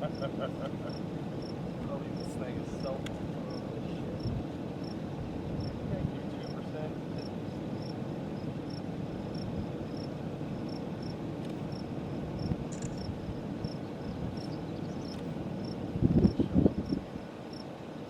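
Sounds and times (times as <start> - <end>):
crickets chirping: 0.0 - 18.0
wind rumble: 15.9 - 17.2.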